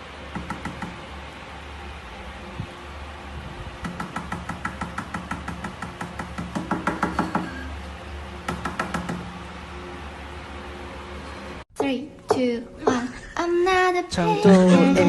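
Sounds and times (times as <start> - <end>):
steady low hum: 0.0 - 15.0
rapid sharp taps: 3.8 - 7.5.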